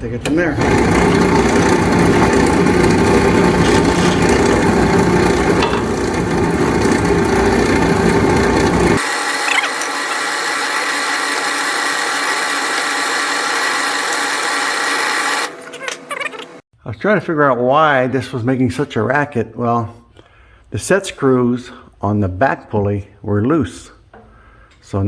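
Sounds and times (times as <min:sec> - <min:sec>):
drill press drilling wood: 0:00.2 - 0:16.0
heavy rumbling rattle: 0:00.3 - 0:09.0.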